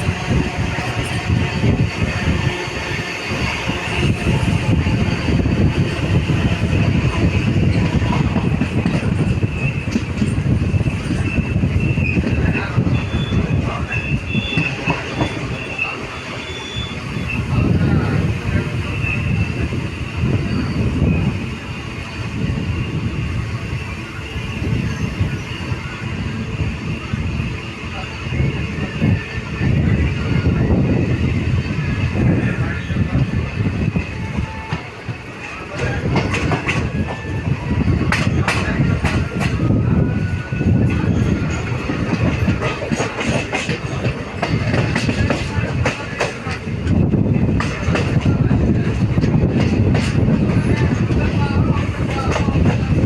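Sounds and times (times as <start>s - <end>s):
high wheel squeal: 0.0s - 30.6s
train rumbling and rattling: 0.0s - 53.0s.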